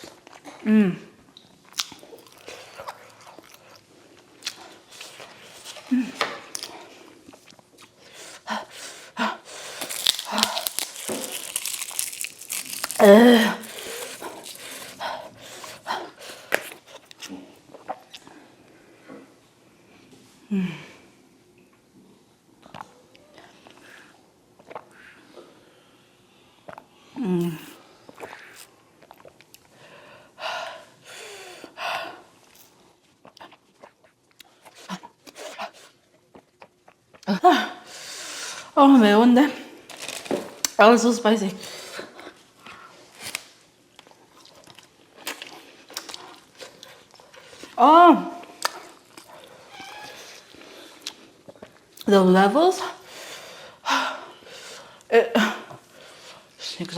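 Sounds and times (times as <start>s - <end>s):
paper packaging crinkling: 9.7s - 14.9s, 39.9s - 40.6s
woman breathing hard: 29.8s - 32.3s.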